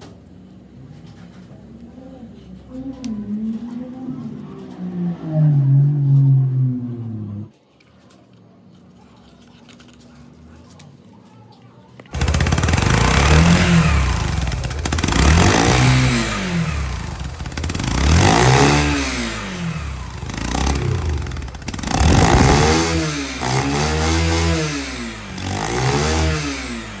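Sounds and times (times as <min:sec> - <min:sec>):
motorcycle engine revving: 0:12.1 - 0:27.0.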